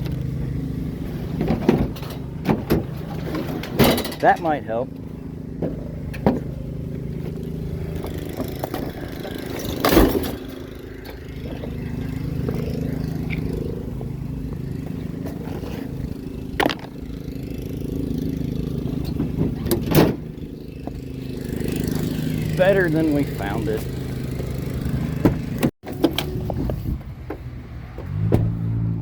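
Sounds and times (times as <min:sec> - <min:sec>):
vehicle engine idling: 0:00.0 - 0:25.7.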